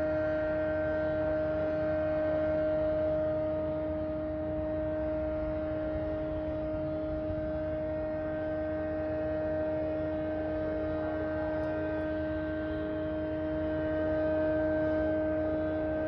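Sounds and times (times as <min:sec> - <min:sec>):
loud humming drone: 0:00.0 - 0:16.0.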